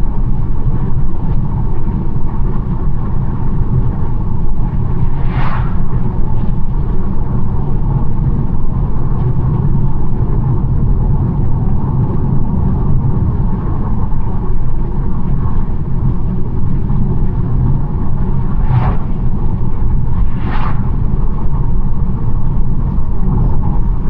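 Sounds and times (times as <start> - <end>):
car tyre and road rumble: 0.0 - 24.0.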